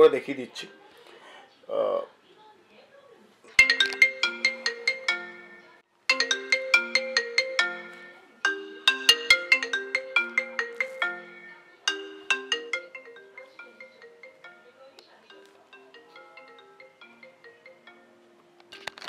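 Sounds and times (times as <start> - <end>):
phone ringtone melody: 3.6 - 19.0.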